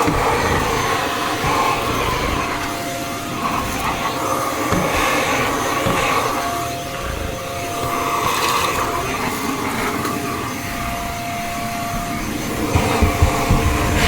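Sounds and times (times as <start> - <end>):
vacuum cleaner motor whine: 0.0 - 14.0
nozzle bumping against stairs: 11.9 - 14.0.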